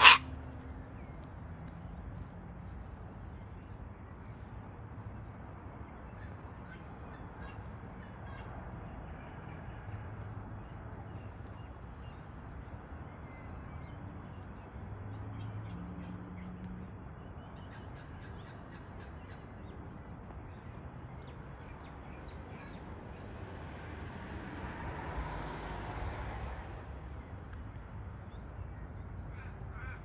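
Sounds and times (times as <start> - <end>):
cockatoos squawking: 0.0 - 0.3.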